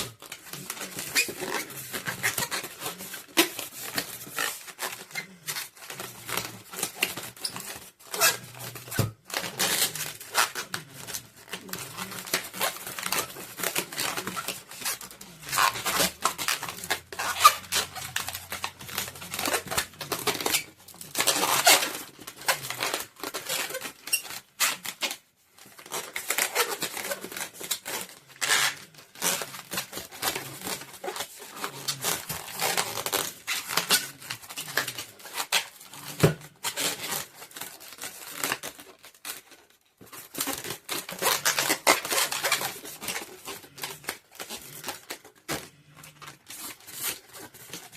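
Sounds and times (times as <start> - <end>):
balloons crackling and rubbing: 0.0 - 47.9.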